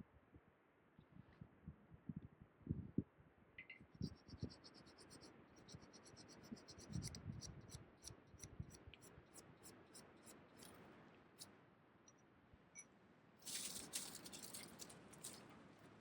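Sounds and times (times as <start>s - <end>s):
faint scratching: 13.4s - 15.6s.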